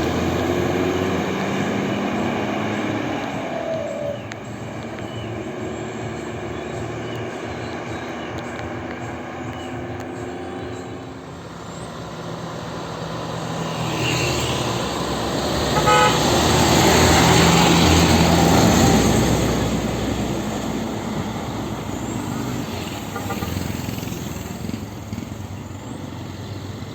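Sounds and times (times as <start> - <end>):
horn toot: 15.6 - 17.0, 23.1 - 23.8.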